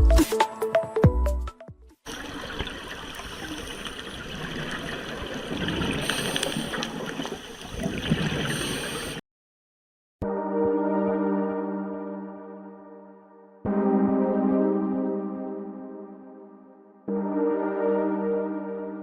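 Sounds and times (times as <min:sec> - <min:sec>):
gurgling water with crackle: 0:02.1 - 0:09.2.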